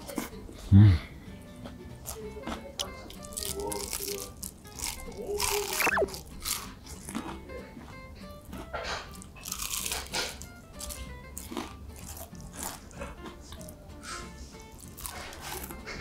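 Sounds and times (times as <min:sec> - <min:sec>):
background music: 0:00.4 - 0:16.0
crisp crunches of chewing: 0:02.0 - 0:07.5, 0:08.9 - 0:13.7, 0:14.7 - 0:16.0.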